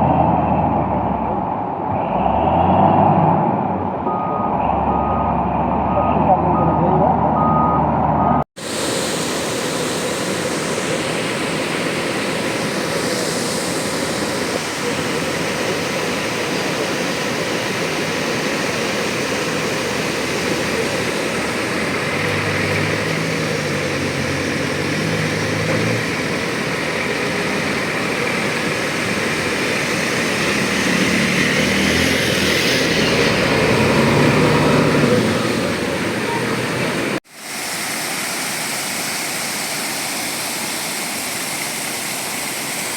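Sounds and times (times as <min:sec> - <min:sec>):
river rushing: 0:08.6 - 0:42.9.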